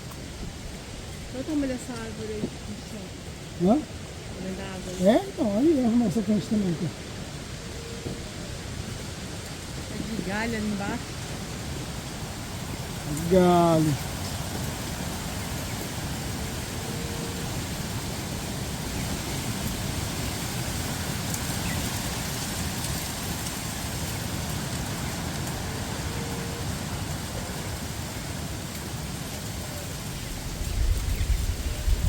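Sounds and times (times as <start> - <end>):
rushing wind: 0.0 - 32.0
wind buffeting microphone: 0.0 - 32.0.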